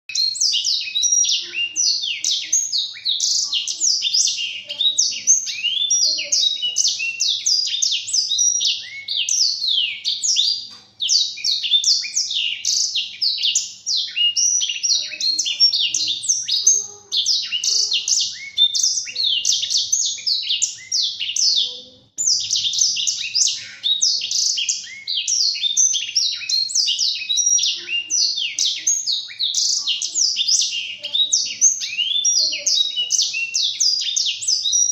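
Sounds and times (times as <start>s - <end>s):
bird singing twittering song: 0.0s - 34.9s.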